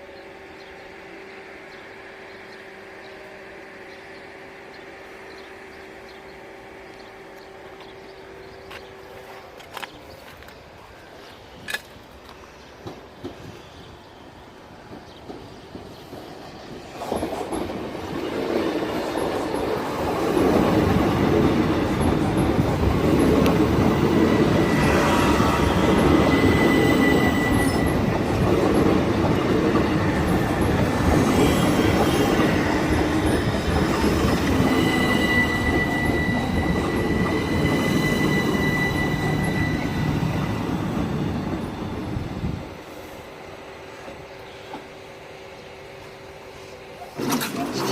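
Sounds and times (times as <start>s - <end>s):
train running noise: 0.0s - 47.9s
high wheel squeal: 23.8s - 28.5s, 30.0s - 42.6s.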